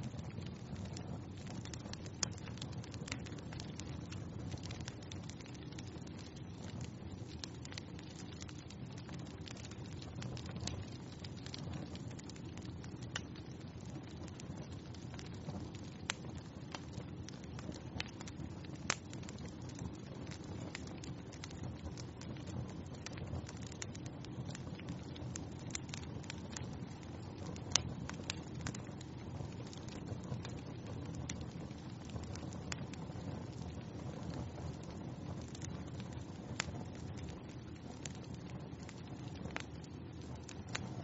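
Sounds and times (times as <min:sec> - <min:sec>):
wood fire crackling and popping: 0:00.0 - 0:41.0.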